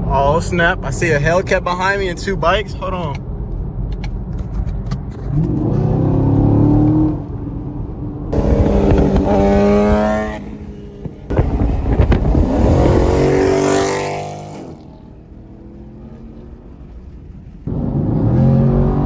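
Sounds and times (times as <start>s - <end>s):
vehicle engine accelerating hard: 5.2s - 7.4s, 8.2s - 19.0s.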